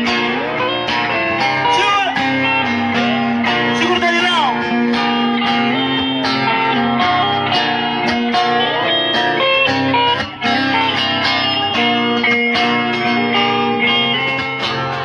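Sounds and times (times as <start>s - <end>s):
guitar: 0.0s - 15.0s
live band instrumental: 0.0s - 15.0s.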